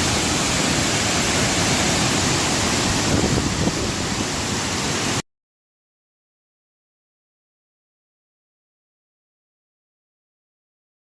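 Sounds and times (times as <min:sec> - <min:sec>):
waterfall rushing: 0:00.0 - 0:05.2.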